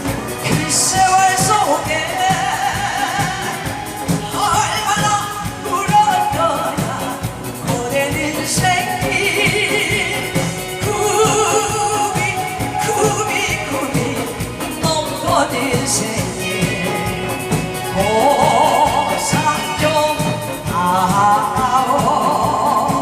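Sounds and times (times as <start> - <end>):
amplified backing track: 0.0 - 23.0
person singing live: 0.0 - 23.0.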